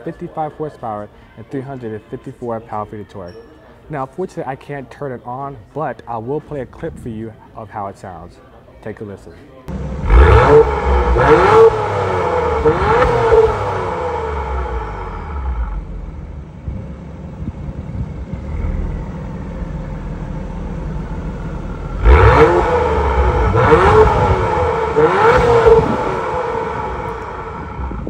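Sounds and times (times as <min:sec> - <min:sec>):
car engine revving: 0:09.7 - 0:28.0.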